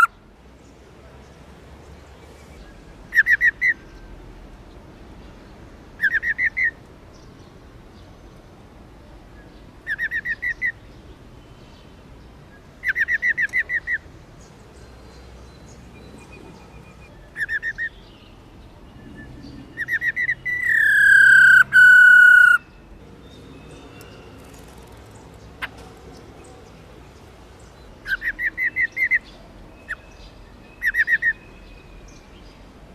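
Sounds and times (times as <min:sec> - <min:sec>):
bird long whistle: 0:19.8 - 0:22.6.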